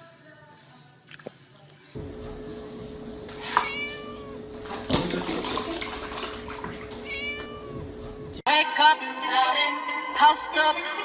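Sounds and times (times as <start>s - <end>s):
kitten mewing: 3.3s - 4.6s, 5.3s - 8.4s
milk pouring and splashing: 4.6s - 7.6s
music with singing: 8.5s - 11.0s.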